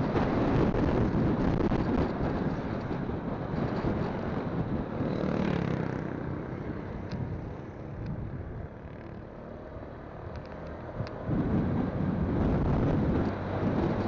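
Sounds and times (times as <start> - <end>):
wind rushing over microphone: 0.0 - 9.0, 10.0 - 14.0
motorcycle engine and tyres: 0.0 - 14.0.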